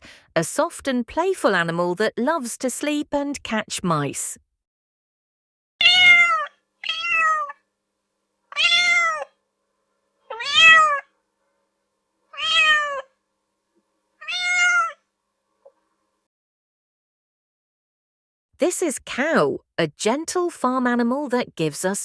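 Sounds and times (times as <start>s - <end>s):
cat meowing: 5.8s - 7.6s, 8.5s - 9.4s, 10.3s - 11.1s, 12.3s - 13.1s, 14.2s - 15.0s.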